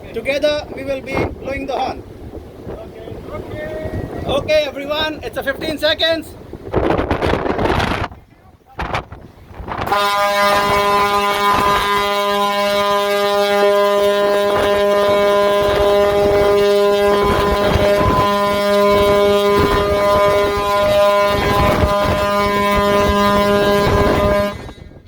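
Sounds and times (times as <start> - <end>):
wind buffeting microphone: 0.0 - 25.0
ship's horn blast: 9.5 - 25.0.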